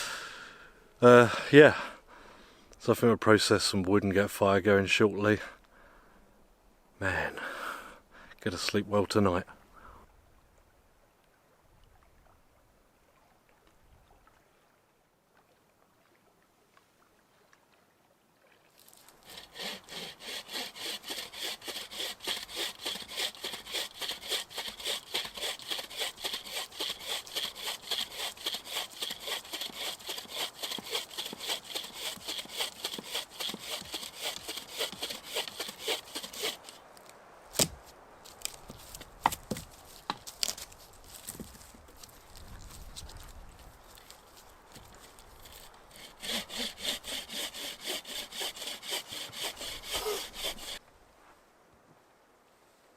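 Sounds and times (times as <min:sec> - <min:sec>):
hand saw cutting wood: 0:19.2 - 0:36.8, 0:44.7 - 0:50.8.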